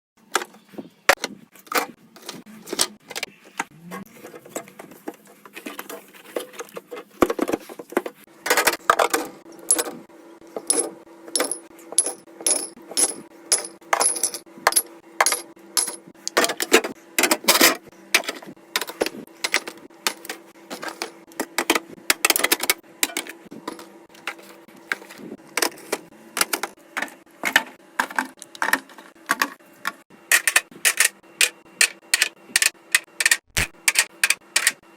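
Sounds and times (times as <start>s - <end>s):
containers clicking and clattering: 0.3s - 34.8s.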